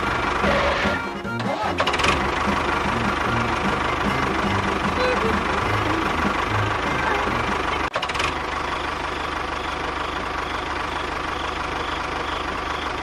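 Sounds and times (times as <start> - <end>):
small engine chugging: 0.0 - 13.0
engine clicks: 1.4 - 8.5.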